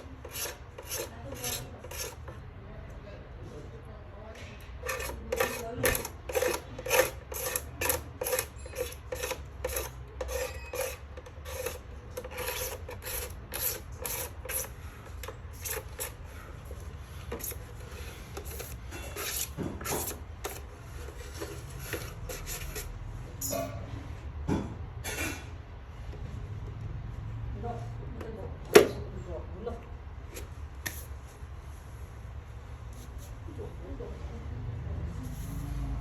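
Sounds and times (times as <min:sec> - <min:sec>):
rasping filing strokes: 0:00.0 - 0:02.4, 0:04.7 - 0:23.0.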